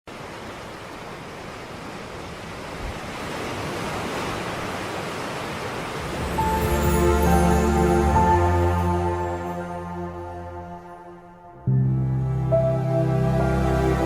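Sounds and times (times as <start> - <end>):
sea waves washing: 0.1 - 14.0
music with sustained tones: 6.0 - 14.0.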